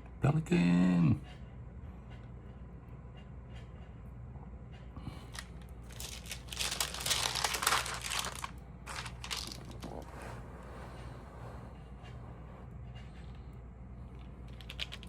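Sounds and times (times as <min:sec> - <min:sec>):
stamps crinkling and rustling: 0:05.2 - 0:10.1.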